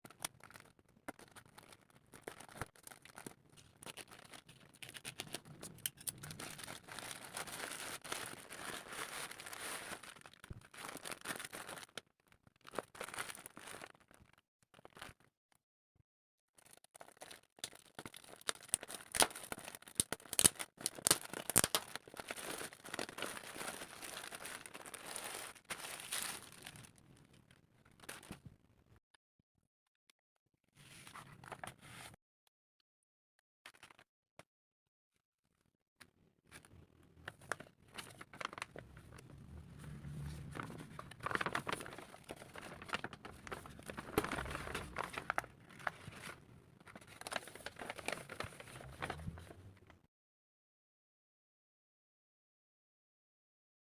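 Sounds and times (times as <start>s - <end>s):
packaging crinkling and tearing: 0.0s - 15.2s, 16.6s - 28.4s, 36.6s - 39.3s, 40.2s - 49.5s.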